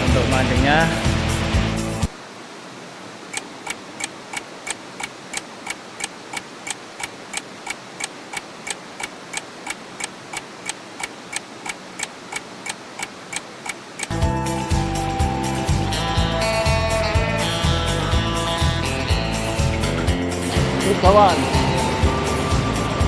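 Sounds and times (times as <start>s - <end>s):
regular sharp clicking: 3.3s - 14.2s.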